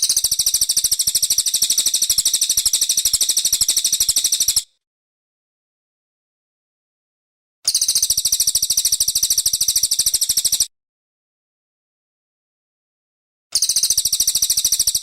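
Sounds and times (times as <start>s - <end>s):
songbird chattering trill: 0.0s - 4.7s, 7.7s - 10.7s, 13.6s - 15.0s.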